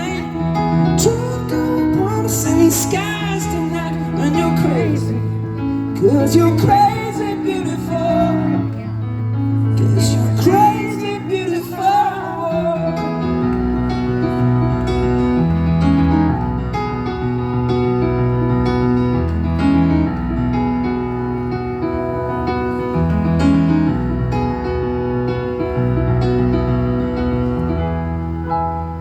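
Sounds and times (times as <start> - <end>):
man singing: 0.0 - 9.0, 9.6 - 13.6
keyboard playing piano chords: 0.0 - 29.0.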